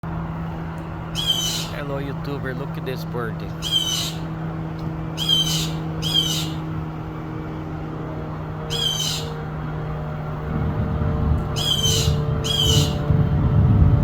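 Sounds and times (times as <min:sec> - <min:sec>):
steady low hum: 0:00.0 - 0:14.0
small bird rasping calls: 0:01.0 - 0:01.9, 0:03.5 - 0:06.9, 0:08.6 - 0:09.6, 0:11.5 - 0:13.1.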